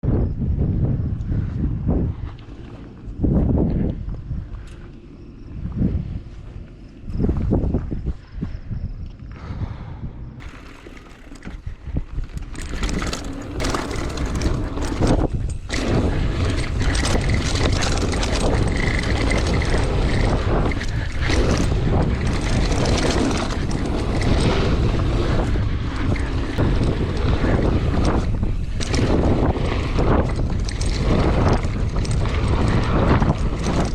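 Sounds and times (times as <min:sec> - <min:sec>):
wind buffeting microphone: 0:00.0 - 0:33.9
mountain bike rattling on dirt trail: 0:10.4 - 0:33.9.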